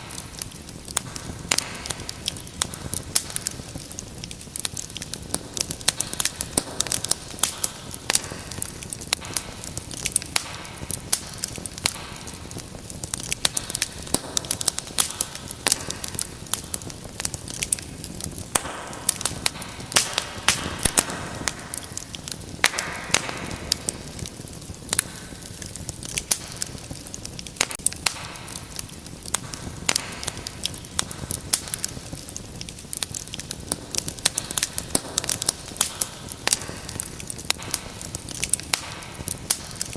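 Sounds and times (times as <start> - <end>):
hiss of burning: 0.0 - 39.9
wood fire popping and snapping: 0.0 - 39.9.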